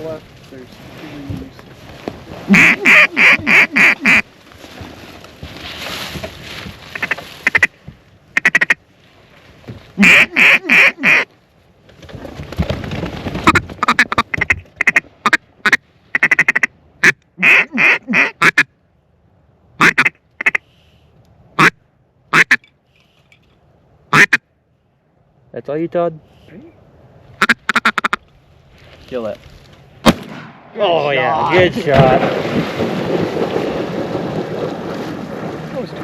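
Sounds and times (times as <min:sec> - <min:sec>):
duck call quacks: 0:02.5 - 0:04.3, 0:06.9 - 0:07.7, 0:08.4 - 0:08.8, 0:10.0 - 0:11.3, 0:13.4 - 0:18.7, 0:19.8 - 0:20.7, 0:21.6 - 0:22.6, 0:24.1 - 0:24.4, 0:27.4 - 0:28.2.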